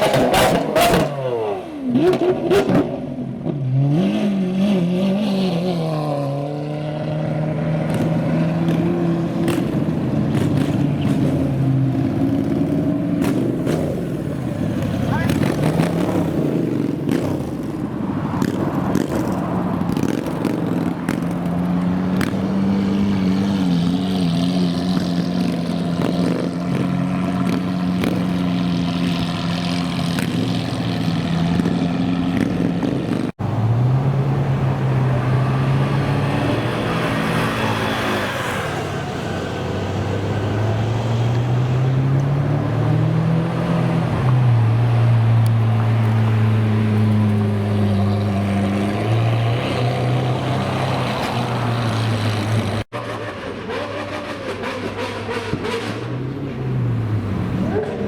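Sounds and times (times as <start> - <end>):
engine revving up: 19.9 - 58.0.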